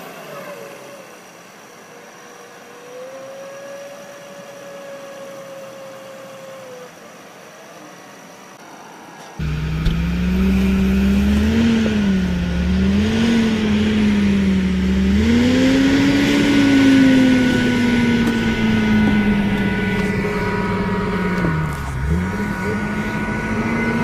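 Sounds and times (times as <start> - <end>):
tractor engine revving: 9.4 - 24.0.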